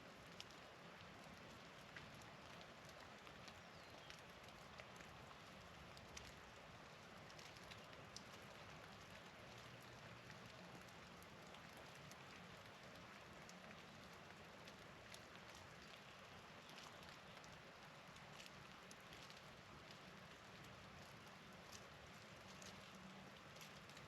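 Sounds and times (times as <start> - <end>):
patter of falling rain: 0.0 - 24.0.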